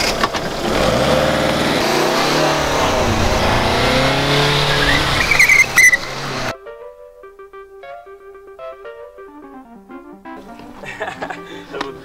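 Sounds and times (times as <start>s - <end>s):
car engine revving: 0.3s - 6.5s
brief high squeal: 2.3s - 6.5s.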